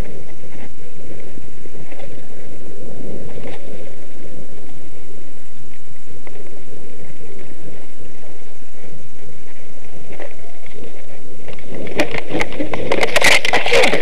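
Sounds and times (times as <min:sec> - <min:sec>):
tyres rumbling on dirt trail: 0:00.0 - 0:14.0
wind buffeting microphone: 0:00.0 - 0:14.0
bike clicks and rattles: 0:09.5 - 0:14.0.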